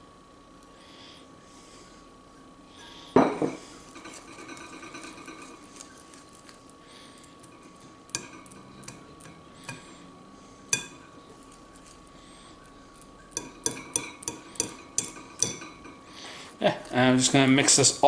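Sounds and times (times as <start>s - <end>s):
scraping and stirring: 2.7s - 18.0s
utensils clattering in bowl: 3.4s - 6.6s, 7.4s - 9.9s, 13.4s - 16.2s.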